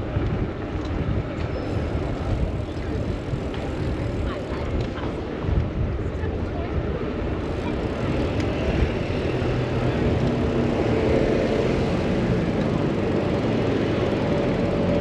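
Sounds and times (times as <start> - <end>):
road traffic: 0.0 - 15.0
vehicle engines humming: 7.0 - 15.0.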